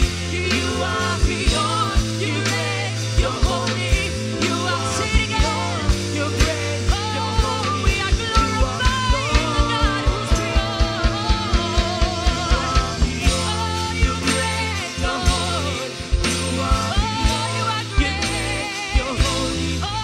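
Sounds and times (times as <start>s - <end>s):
keyboard and bass chords: 0.0s - 20.0s.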